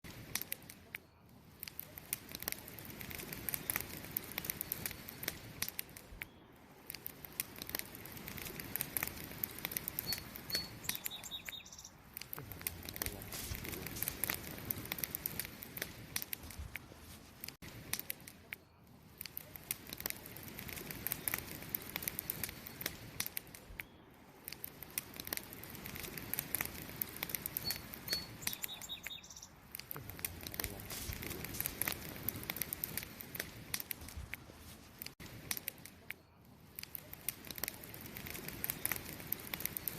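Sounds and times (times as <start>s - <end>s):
campfire crackling: 0.0s - 39.9s
bird chirping: 10.0s - 12.0s, 27.5s - 29.6s.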